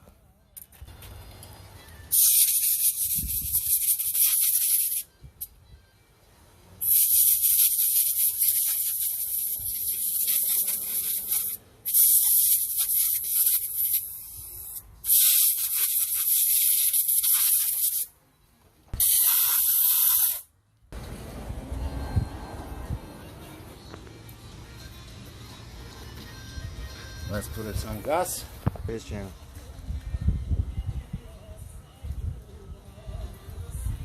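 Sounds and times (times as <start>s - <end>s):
pressurised spray hissing: 2.1s - 5.0s, 6.8s - 18.1s, 19.0s - 20.5s.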